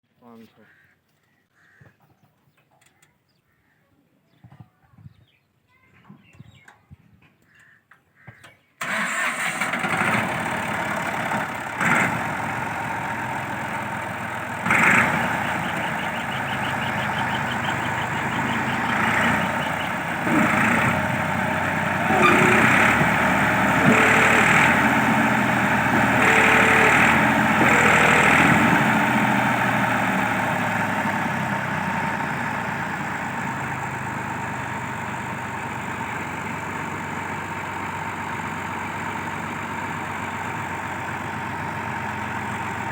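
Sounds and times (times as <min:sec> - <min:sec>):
tractor engine running: 0:08.8 - 0:42.9.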